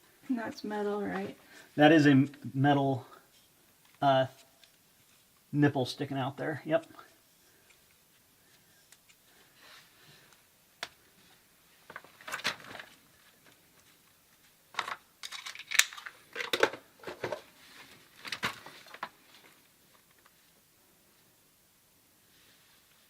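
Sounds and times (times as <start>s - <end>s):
crinkly rustling and scraping: 3.2s - 5.5s, 11.0s - 20.6s.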